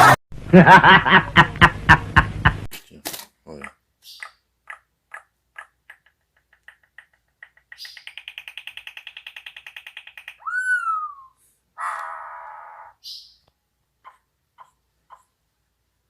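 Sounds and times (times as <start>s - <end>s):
songbird singing: 3.6s - 15.4s.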